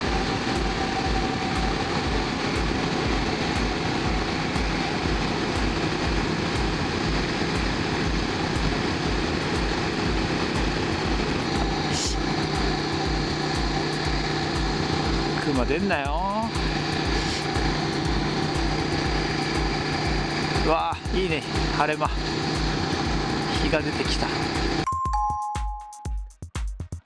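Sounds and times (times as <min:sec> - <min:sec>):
wind noise: 0:00.0 - 0:15.4
motorcycle engine running: 0:00.0 - 0:24.9.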